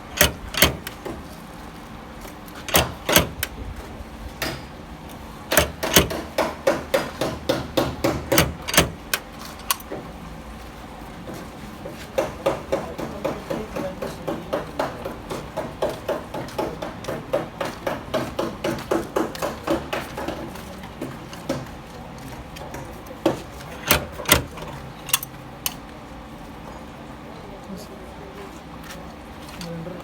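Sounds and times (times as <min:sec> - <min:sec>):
hammer tapping sheet metal: 0:05.5 - 0:09.2.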